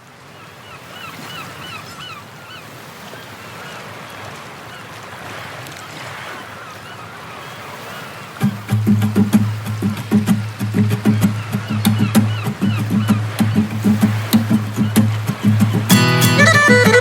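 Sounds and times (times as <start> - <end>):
waves washing: 0.0 - 17.0
honking bird calls: 6.1 - 17.0.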